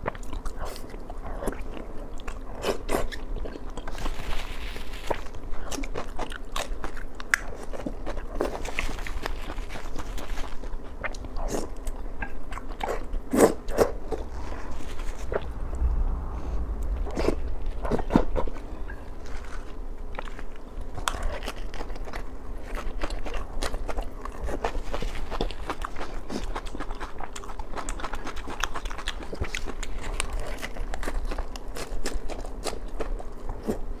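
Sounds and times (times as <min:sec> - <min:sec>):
person chewing food: 0:05.0 - 0:15.5, 0:17.2 - 0:33.8.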